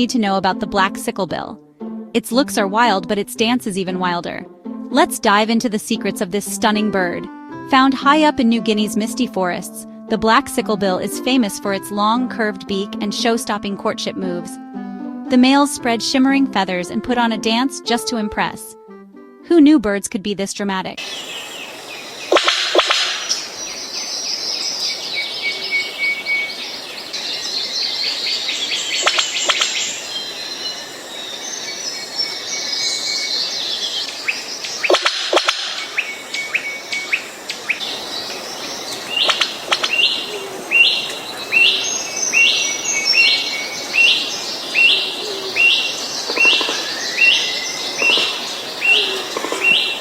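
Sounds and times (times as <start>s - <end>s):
birds chirping: 21.0s - 50.0s
bird's falling call: 33.8s - 50.0s.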